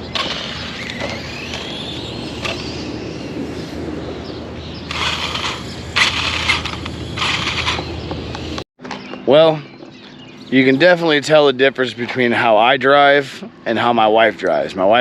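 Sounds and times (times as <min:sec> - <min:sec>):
electric motor whine: 0:00.0 - 0:08.6
wheels spinning with scraping hiss: 0:04.8 - 0:08.6.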